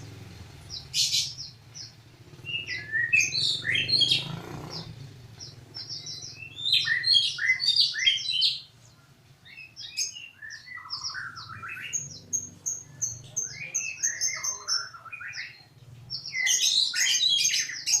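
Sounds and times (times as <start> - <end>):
songbird singing: 0.0 - 18.0.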